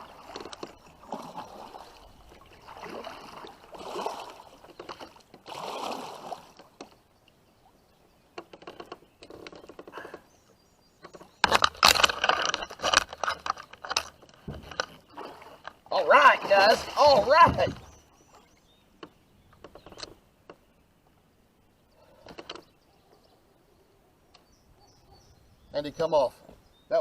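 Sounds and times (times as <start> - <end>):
fish thrashing and splashing: 0.0 - 6.7
water sloshing around kayak: 0.0 - 19.9.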